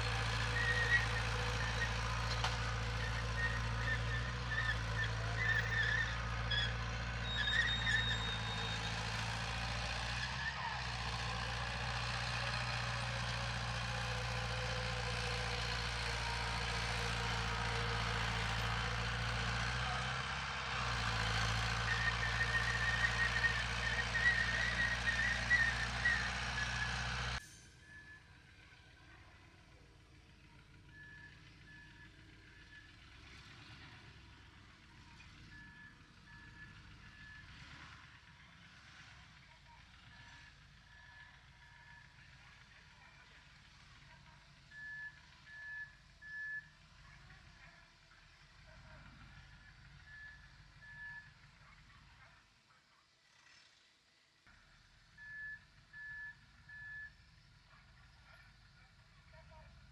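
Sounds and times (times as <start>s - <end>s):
heavy diesel engine running: 0.0s - 52.3s
high chirps or squeaks: 3.0s - 9.0s.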